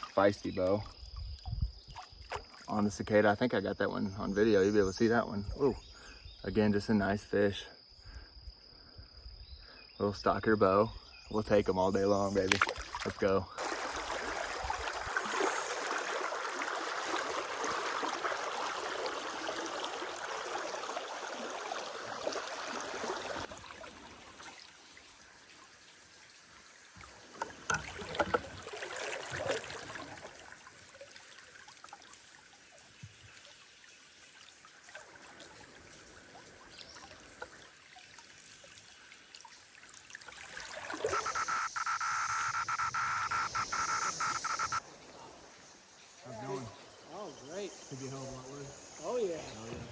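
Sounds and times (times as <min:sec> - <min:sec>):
cicadas buzzing: 0:13.1 - 0:23.5, 0:40.5 - 0:49.9
river water rushing: 0:13.6 - 0:24.1.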